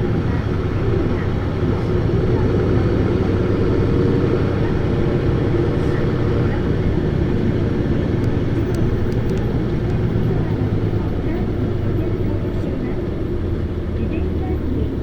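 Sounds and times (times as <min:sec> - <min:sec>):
bus diesel engine running: 0:00.0 - 0:15.0
faint clicks: 0:08.2 - 0:10.1.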